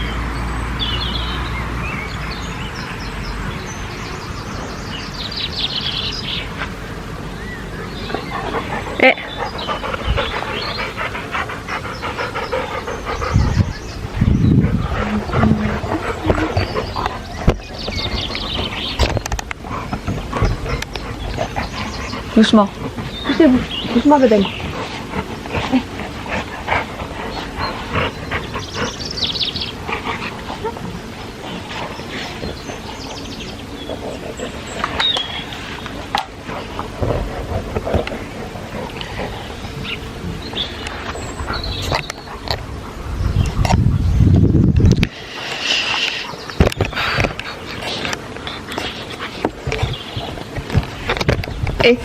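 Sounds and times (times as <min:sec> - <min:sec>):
dog panting: 0:08.0 - 0:43.7.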